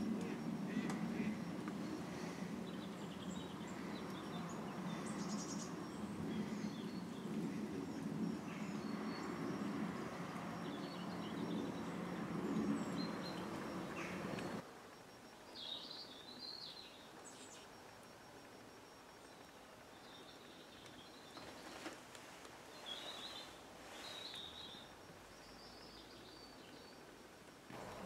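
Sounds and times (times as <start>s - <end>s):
small birds chirping: 0.0s - 14.6s, 15.3s - 22.0s, 22.7s - 27.2s
low background rumble: 0.0s - 15.4s.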